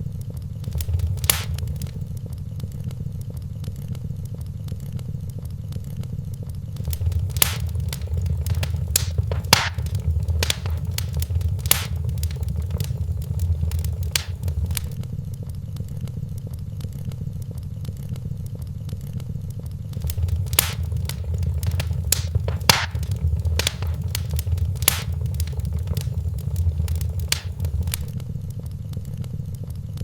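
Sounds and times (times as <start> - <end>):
wood fire crackling and popping: 0.6 - 2.1, 6.8 - 15.0, 19.9 - 28.2
low rumble of flame: 0.6 - 3.4, 6.4 - 15.5, 19.9 - 28.3.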